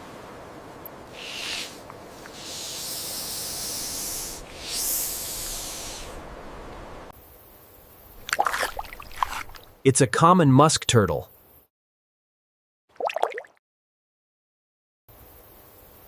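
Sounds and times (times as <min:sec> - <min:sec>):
snake hissing: 0:01.1 - 0:06.3.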